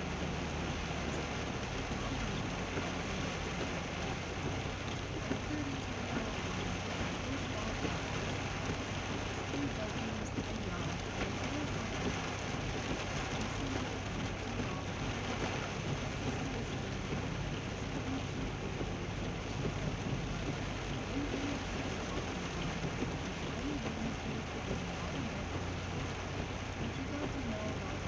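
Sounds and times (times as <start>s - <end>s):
engine and road hum: 0.0s - 28.0s
heavy rain on a car: 0.0s - 28.0s.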